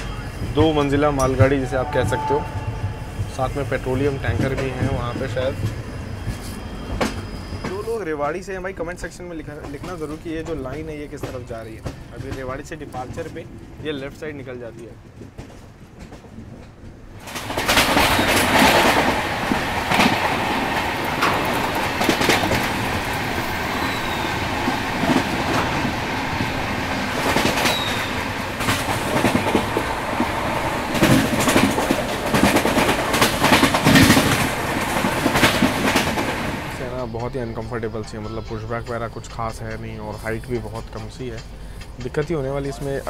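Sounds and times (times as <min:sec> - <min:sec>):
train rolling rumble: 0:00.0 - 0:43.0
wheels clicking over rail joints: 0:09.0 - 0:43.0.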